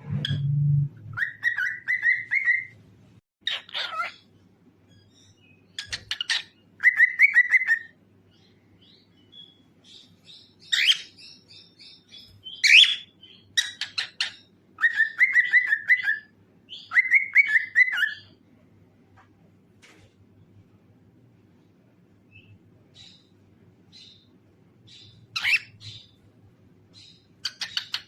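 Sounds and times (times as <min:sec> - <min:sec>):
cockatiel singing: 0:01.1 - 0:02.8, 0:03.4 - 0:04.3, 0:04.9 - 0:18.4, 0:24.9 - 0:26.2, 0:26.9 - 0:28.0
sharp bird calls: 0:01.1 - 0:02.8, 0:03.4 - 0:04.3, 0:04.9 - 0:18.4, 0:22.4 - 0:26.2, 0:26.9 - 0:28.0.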